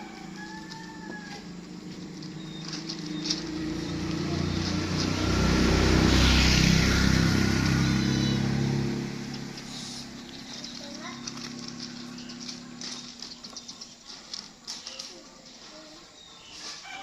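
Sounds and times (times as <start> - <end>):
vehicle engine passing by: 0.0 - 14.8.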